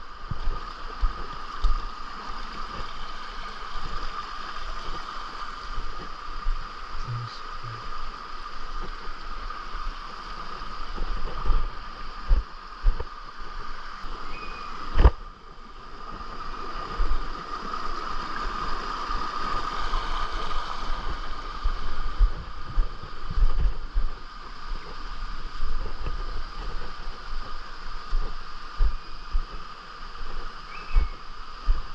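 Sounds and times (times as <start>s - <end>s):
steady high hum: 5.5s - 8.8s.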